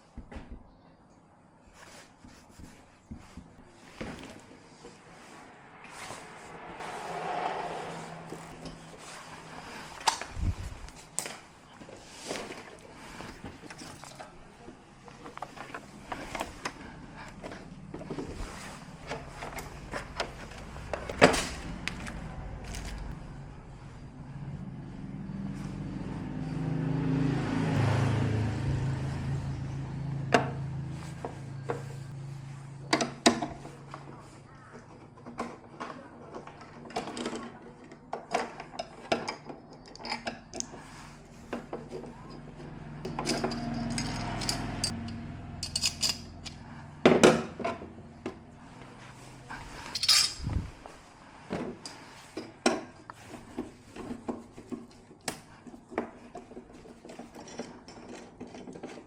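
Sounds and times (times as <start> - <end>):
metallic clinks and knocks: 42.2 - 46.6, 49.8 - 50.7.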